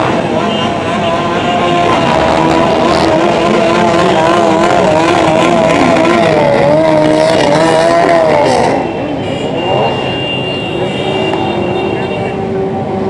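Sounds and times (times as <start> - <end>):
motorcycle engines passing: 0.0 - 13.0.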